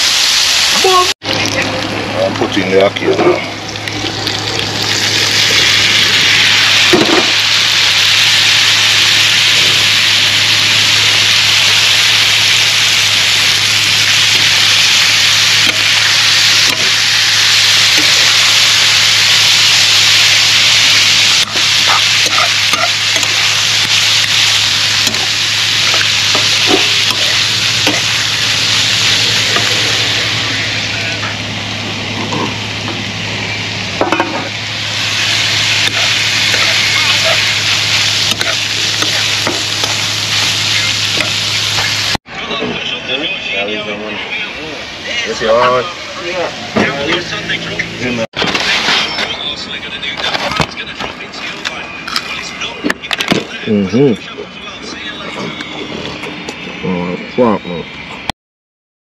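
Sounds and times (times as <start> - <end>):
food sizzling in a pan: 0.0 - 42.2.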